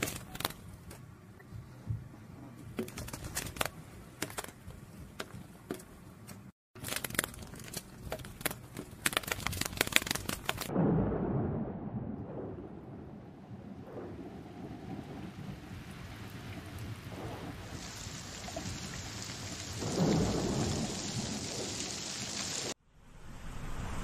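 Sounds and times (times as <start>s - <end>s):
butterfly wings fluttering: 2.8s - 4.5s, 8.2s - 10.7s
rumble of thunder: 10.7s - 18.0s, 19.6s - 22.4s
rain: 12.1s - 22.8s.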